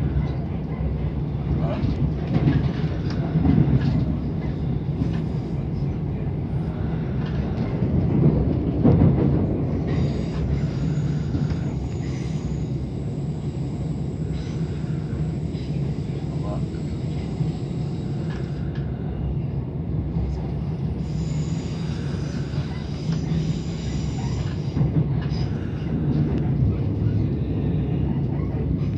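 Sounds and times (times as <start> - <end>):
train rumbling over tracks: 0.0 - 28.9.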